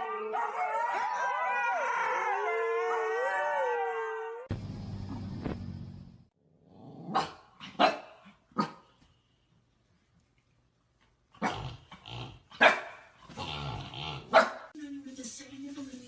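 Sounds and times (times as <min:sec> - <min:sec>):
dog barking: 0:07.1 - 0:08.9, 0:12.6 - 0:13.1, 0:14.3 - 0:14.7.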